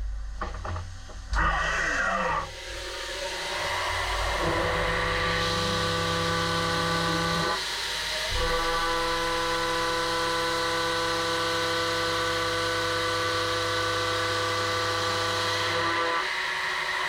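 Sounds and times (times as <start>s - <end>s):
milling machine cutting metal: 1.4s - 17.0s.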